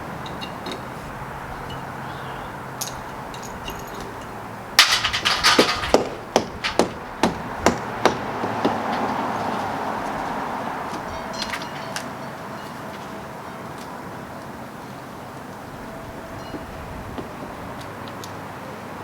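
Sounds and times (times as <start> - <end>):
steady background noise: 0.0 - 19.0
hammer striking: 4.8 - 10.3.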